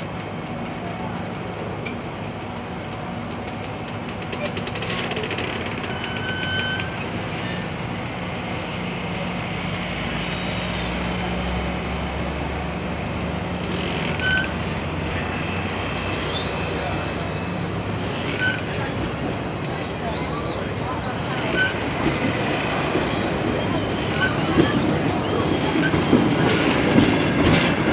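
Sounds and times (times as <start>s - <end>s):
diesel locomotive rumble: 0.0s - 27.9s
metallic wheel squeals: 4.4s - 7.7s, 12.5s - 15.3s, 16.1s - 22.2s, 22.8s - 26.8s.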